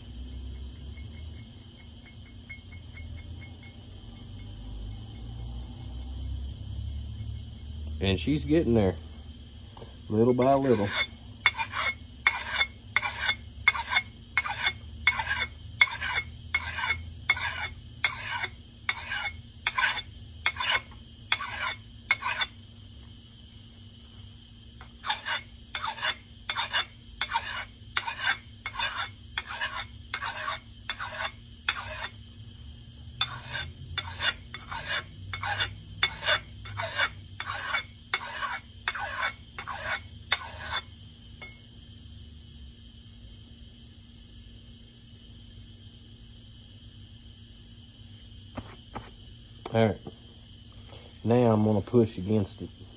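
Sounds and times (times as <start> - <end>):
file rasping on axe edge: 10.2 - 22.6, 24.8 - 32.2, 33.2 - 40.9.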